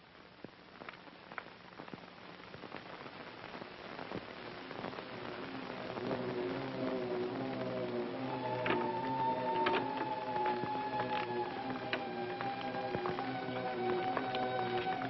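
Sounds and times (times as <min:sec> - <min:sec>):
steady hiss with crackles: 0:00.0 - 0:15.0
sustained music notes: 0:05.8 - 0:15.0.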